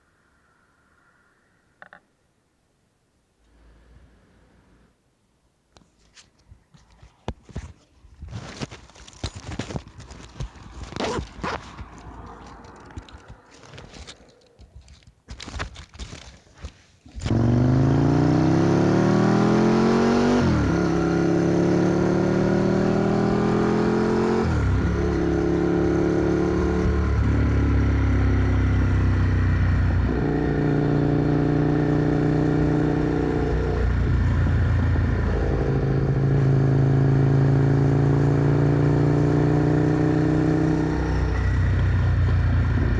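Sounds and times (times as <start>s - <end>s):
handling clicks and scraping: 5.8s - 17.3s
motorcycle engine accelerating: 17.1s - 42.9s.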